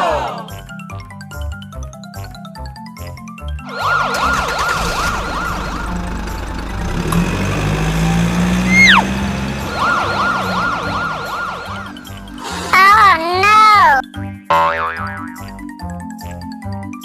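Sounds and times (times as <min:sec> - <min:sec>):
toy siren yelping: 0:03.7 - 0:06.0, 0:08.7 - 0:09.1, 0:09.7 - 0:14.0
falling whistle: 0:08.6 - 0:12.2.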